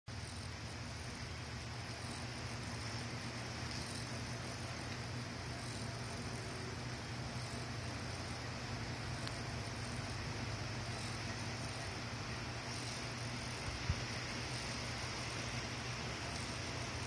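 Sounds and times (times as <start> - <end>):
rotator motors humming: 0.1 - 17.0.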